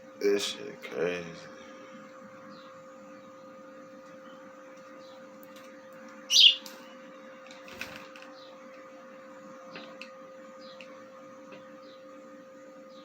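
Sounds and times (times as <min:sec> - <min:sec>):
electrical hum: 0:00.0 - 0:13.0
bird chirping: 0:06.3 - 0:06.7.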